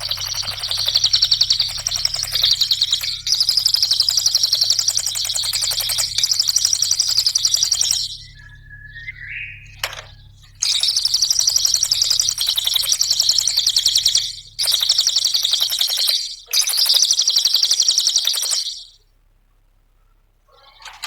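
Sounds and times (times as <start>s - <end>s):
click: 0.0s - 8.2s, 9.8s - 17.0s, 18.0s - 18.8s
songbird chattering trills: 0.0s - 19.0s, 20.5s - 21.0s.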